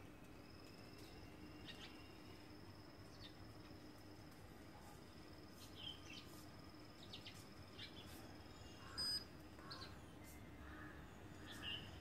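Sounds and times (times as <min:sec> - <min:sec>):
bird chirps: 0:01.0 - 0:02.4, 0:07.0 - 0:10.5.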